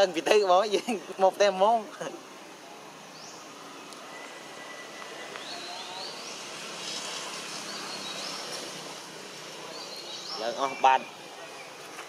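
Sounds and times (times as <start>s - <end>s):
bird high rising calls: 3.0s - 6.9s.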